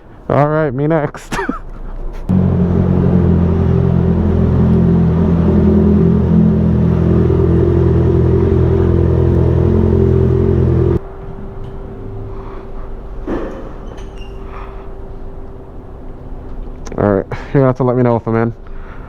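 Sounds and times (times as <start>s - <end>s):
motorcycle engine idling: 2.3s - 11.0s.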